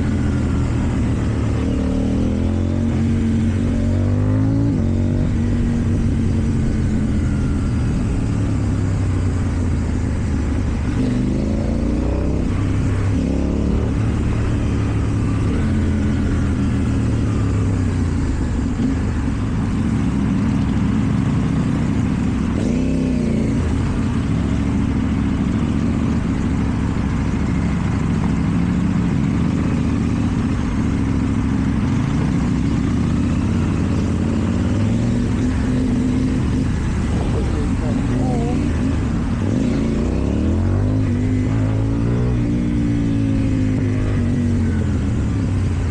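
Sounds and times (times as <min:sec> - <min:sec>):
motorcycle engine at low revs: 0:00.0 - 0:45.9.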